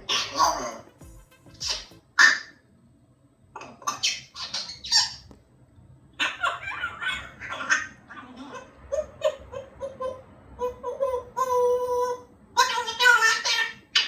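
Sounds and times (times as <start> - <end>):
parrot whistling short notes: 0.0 - 2.5
parrot babbling: 0.0 - 2.6, 3.6 - 5.2, 6.2 - 14.0.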